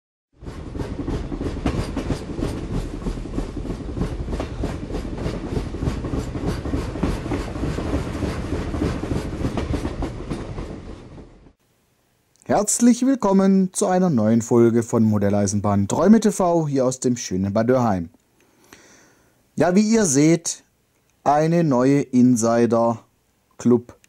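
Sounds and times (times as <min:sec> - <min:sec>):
train wheels clattering over joints: 0:00.4 - 0:11.6.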